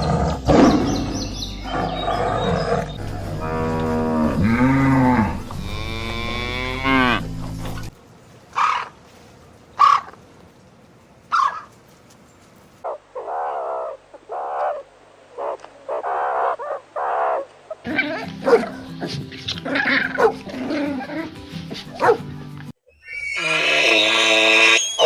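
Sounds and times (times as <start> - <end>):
music: 0.0 - 7.9, 17.9 - 22.8
dog barking: 11.3 - 11.7, 16.2 - 19.2, 19.8 - 20.5, 21.9 - 22.3.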